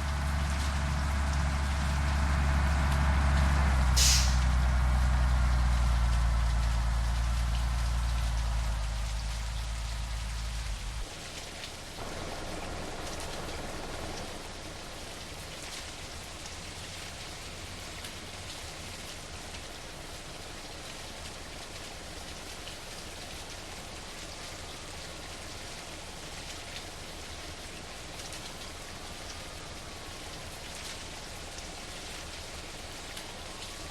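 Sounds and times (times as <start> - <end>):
low rumble: 0.0 - 11.0
rain hissing and pattering: 0.0 - 33.9.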